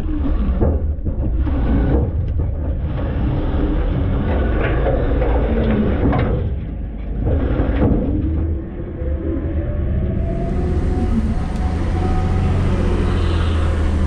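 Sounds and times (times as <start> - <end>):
wavering whine: 8.8 - 14.0
garbage truck engine rumble: 9.8 - 14.0.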